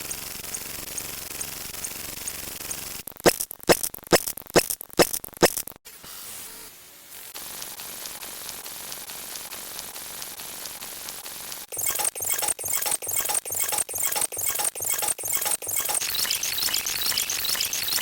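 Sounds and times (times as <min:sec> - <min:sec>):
sharp clicks: 0:11.1 - 0:18.0.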